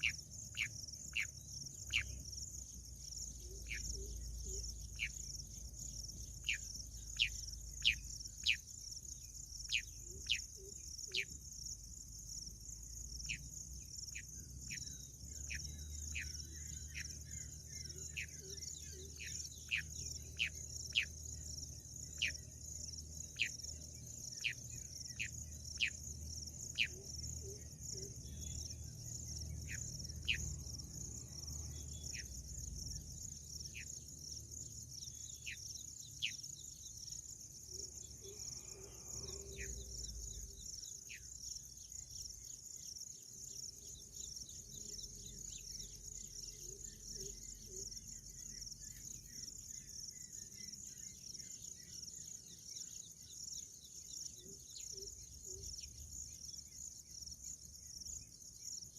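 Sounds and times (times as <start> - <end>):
crickets trilling: 0.0 - 58.9.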